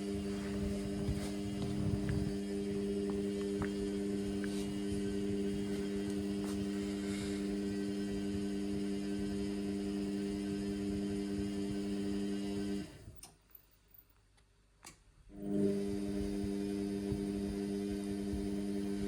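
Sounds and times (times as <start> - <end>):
washing machine humming: 0.0 - 13.2, 15.3 - 19.0.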